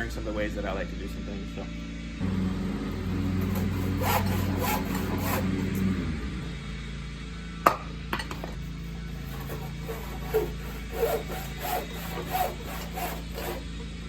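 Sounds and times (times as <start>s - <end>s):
handsaw rasping through wood: 3.0s - 6.2s, 8.5s - 14.0s.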